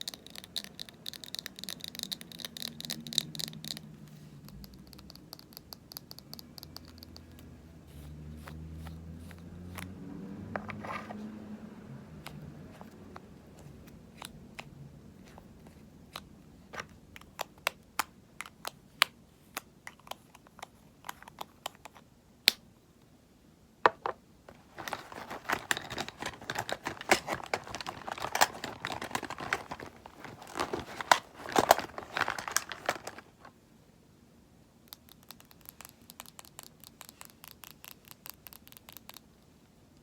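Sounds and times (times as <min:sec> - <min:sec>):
crinkling and rustling: 0:10.5 - 0:11.4, 0:23.9 - 0:33.6
cosmetic items clicking and tapping: 0:23.9 - 0:33.4.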